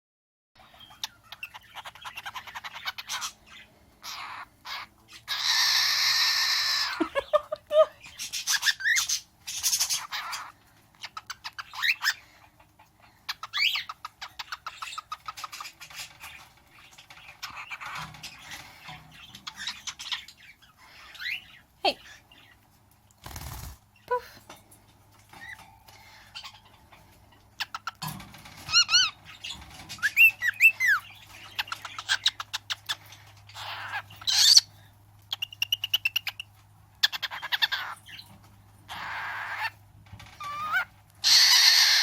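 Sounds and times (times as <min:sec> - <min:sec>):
cockatiel squawk: 0:04.0 - 0:07.0, 0:38.9 - 0:39.7, 0:40.4 - 0:42.0.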